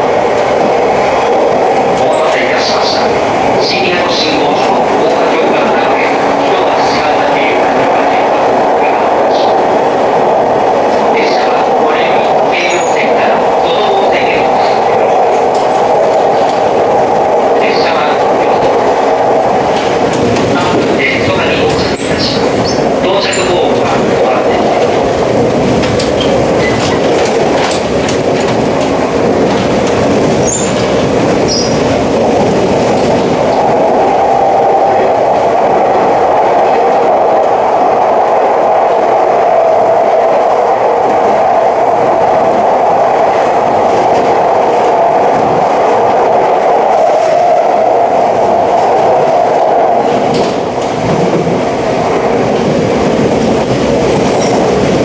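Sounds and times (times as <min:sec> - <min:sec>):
train hum: 0:00.0 - 0:55.0
train wheels rumbling on rail: 0:00.0 - 0:55.0.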